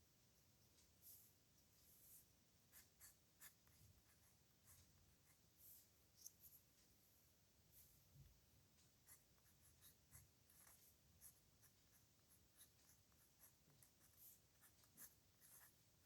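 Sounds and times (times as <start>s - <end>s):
pen scratching on paper: 2.7s - 6.6s, 9.0s - 15.8s.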